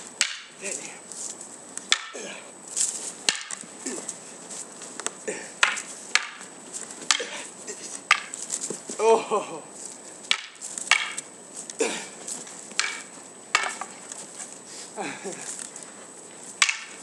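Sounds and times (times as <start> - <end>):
wooden swords clacking together: 0.2 - 0.9, 1.8 - 4.2, 4.9 - 9.0, 10.2 - 14.5, 16.6 - 17.0.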